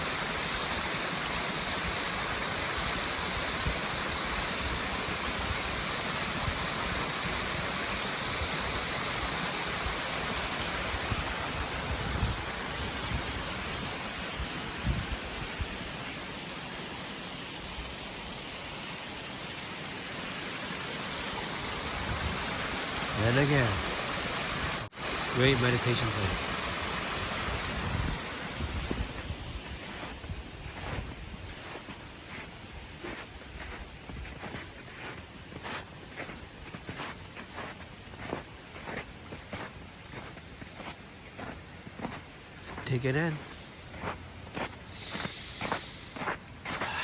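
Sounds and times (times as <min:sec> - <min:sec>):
creek water rushing over waterfall: 0:00.0 - 0:31.0.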